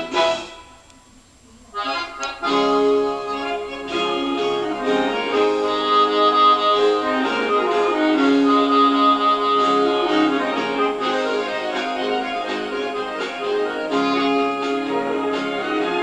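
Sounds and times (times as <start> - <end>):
accordion music with held chords: 0.0 - 0.8, 1.8 - 16.0.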